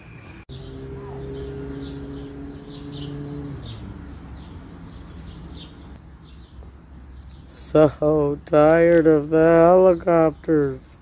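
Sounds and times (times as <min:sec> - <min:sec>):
small birds chirping: 0:00.0 - 0:11.0
low droning tone: 0:00.5 - 0:06.0.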